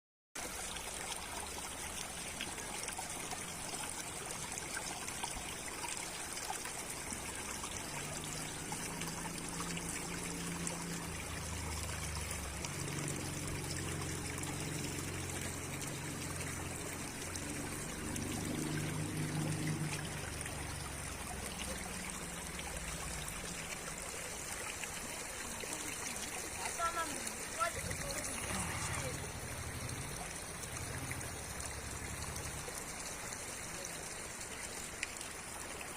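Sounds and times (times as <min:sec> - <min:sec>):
stream rushing water: 0:00.4 - 0:35.9.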